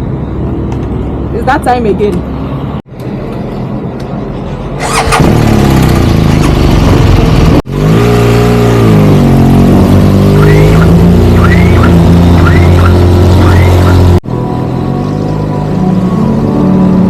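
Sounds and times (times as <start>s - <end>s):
motorcycle engine revving: 4.8s - 14.2s.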